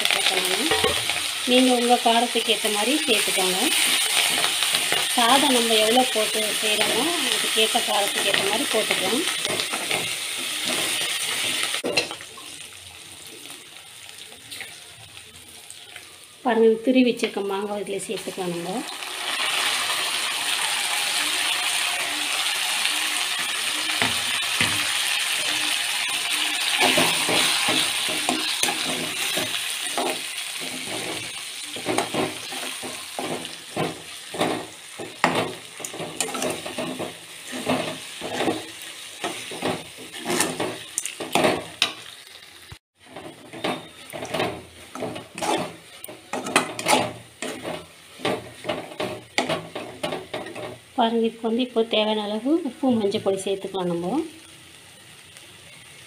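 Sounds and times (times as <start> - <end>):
mango sizzling in hot oil: 0.0 - 56.0
spatula scraping pan: 23.9 - 42.0, 43.0 - 50.8.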